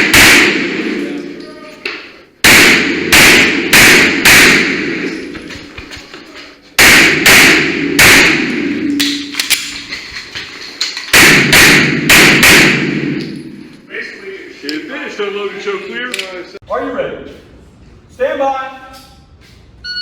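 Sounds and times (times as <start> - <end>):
pistol shots: 0.0 - 1.0, 2.4 - 5.2, 6.8 - 9.8, 11.1 - 13.2
faint gunshots: 2.4 - 5.1, 6.8 - 8.8, 11.2 - 13.2.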